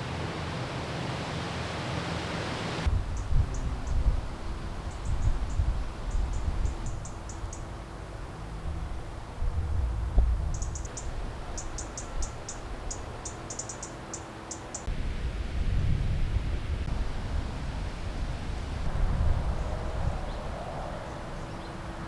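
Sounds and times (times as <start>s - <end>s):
low rumble: 8.1s - 11.5s.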